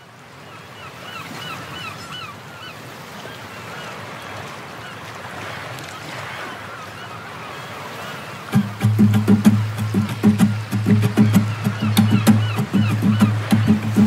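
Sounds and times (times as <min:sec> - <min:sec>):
bird calling: 0:06.0 - 0:14.0
rushing background noise: 0:08.6 - 0:14.0.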